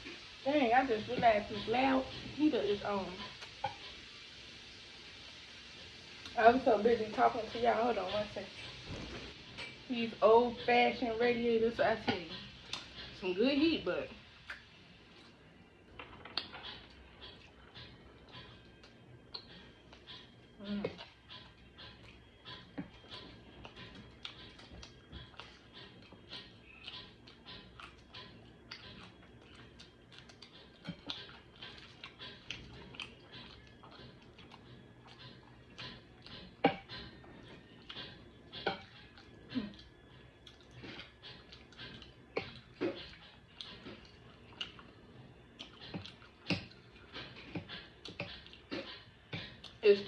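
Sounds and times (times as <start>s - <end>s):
chewing and lip-smacking: 12.0s - 13.2s, 14.4s - 50.0s.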